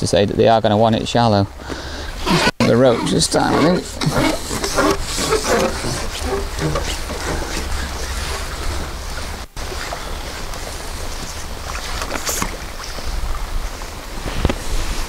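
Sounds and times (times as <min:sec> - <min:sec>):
wind rumble on microphone: 0:07.5 - 0:15.0.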